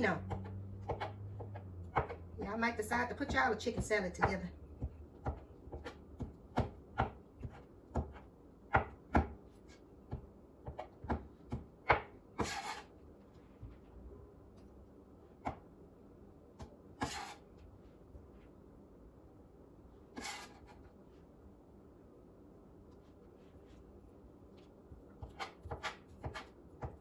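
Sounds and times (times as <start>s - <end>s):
knife chopping chicken: 0.2s - 2.2s, 3.0s - 12.9s, 16.6s - 17.4s, 25.2s - 27.0s
knife scraping: 12.4s - 12.9s, 17.0s - 17.5s, 20.1s - 20.9s, 25.2s - 26.5s.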